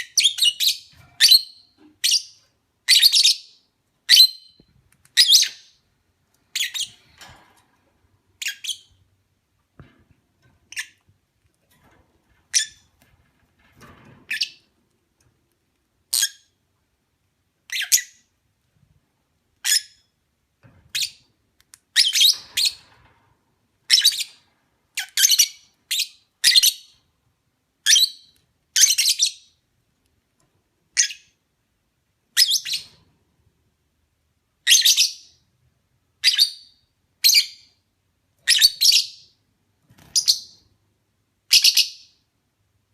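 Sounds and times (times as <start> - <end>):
lovebirds shrill chirps: 6.5 - 7.0, 17.7 - 18.2, 38.4 - 39.3.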